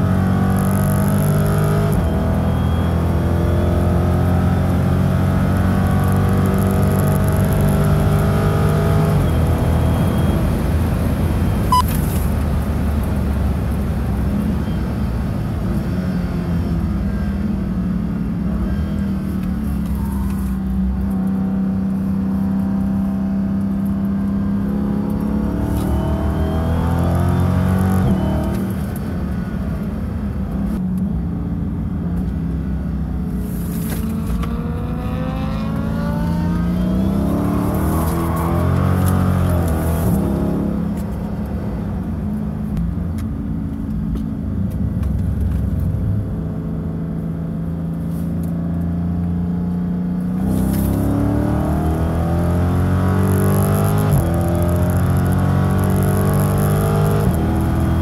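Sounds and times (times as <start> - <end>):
car engine revving through gears: 0.0 - 12.3, 18.6 - 29.0, 33.6 - 41.6, 46.6 - 58.0.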